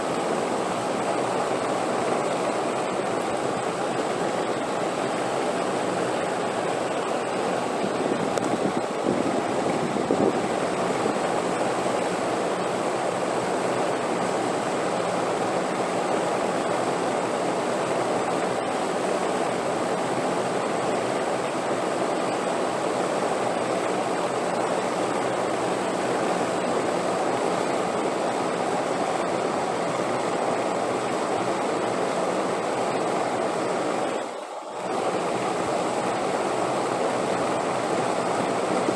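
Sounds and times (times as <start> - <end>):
wind blowing: 5.6 - 11.9.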